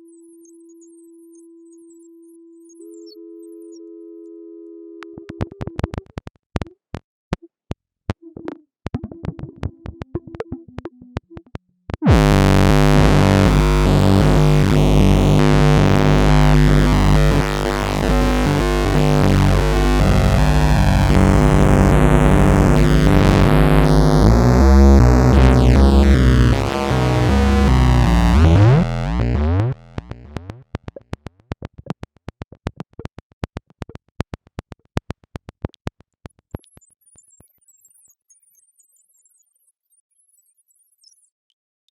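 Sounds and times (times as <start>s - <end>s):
sharp electronic clicks and blips: 12.0s - 31.2s
synthesizer rapidly stepping tones: 12.1s - 31.3s.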